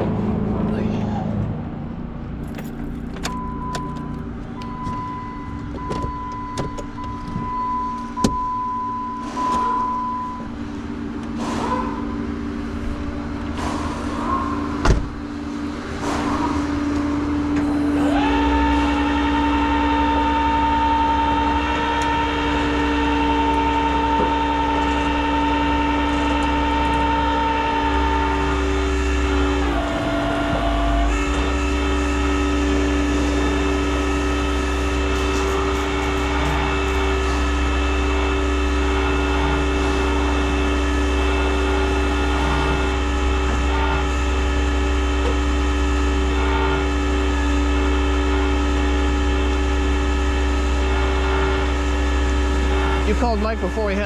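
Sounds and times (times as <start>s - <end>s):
vehicle droning hum: 0.0s - 54.0s
scattered clicks and knocks: 34.4s - 37.6s.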